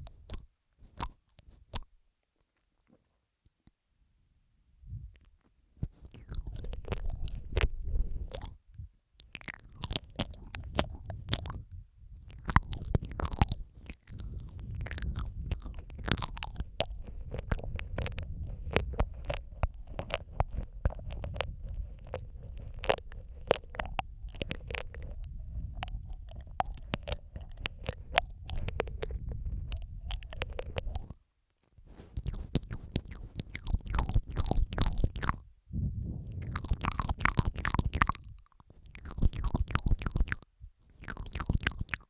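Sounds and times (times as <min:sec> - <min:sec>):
wet mouth clicks and smacks: 0:00.0 - 0:02.0, 0:05.2 - 0:31.2, 0:31.9 - 0:35.5, 0:36.2 - 0:42.0
steady low rumble: 0:09.7 - 0:31.2, 0:32.1 - 0:41.9.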